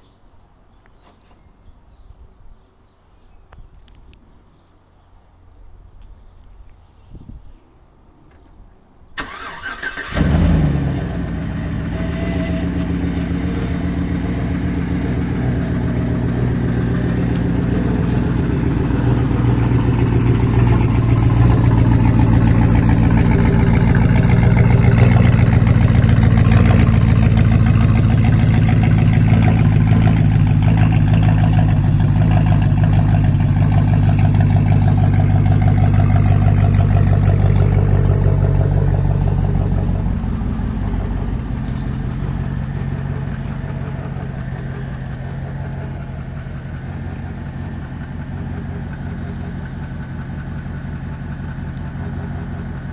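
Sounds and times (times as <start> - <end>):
car engine starting and idling: 9.2 - 52.9.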